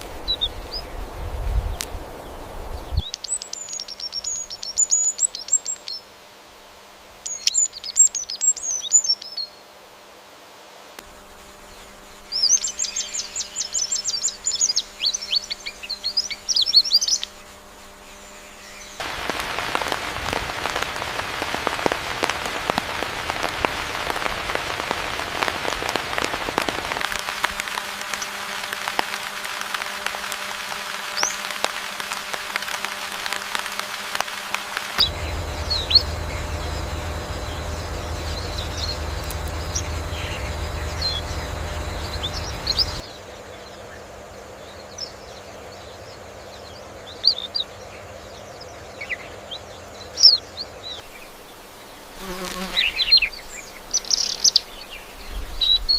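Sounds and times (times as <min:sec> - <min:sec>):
low steady hum: 0:11.0 - 0:47.1
rain patter on leaves: 0:18.8 - 0:43.2, 0:52.8 - 0:55.9
high bird chirps: 0:35.0 - 0:43.0.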